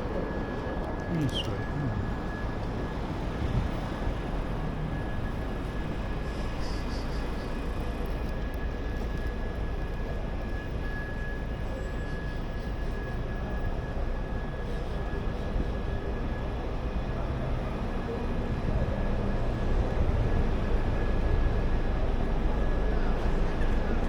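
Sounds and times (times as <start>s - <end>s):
traffic rumble: 0.0s - 8.4s.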